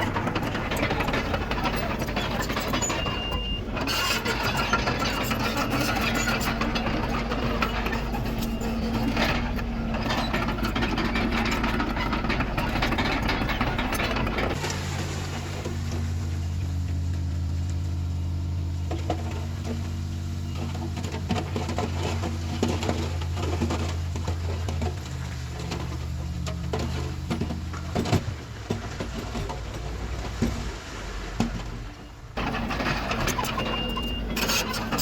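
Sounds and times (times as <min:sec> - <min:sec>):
bulldozer diesel engine running: 0:00.0 - 0:35.0
short knocks and clanks: 0:18.8 - 0:30.7.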